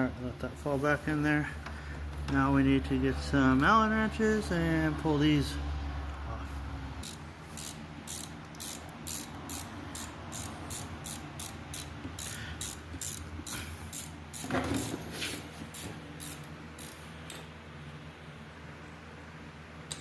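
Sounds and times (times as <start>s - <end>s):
ratchet wrench clicking: 7.0s - 14.9s, 16.2s - 17.4s.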